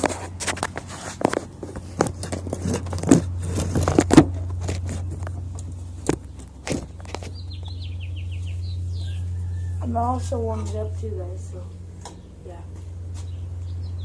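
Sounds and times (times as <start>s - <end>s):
bird chirping: 6.2s - 9.9s, 13.2s - 14.0s.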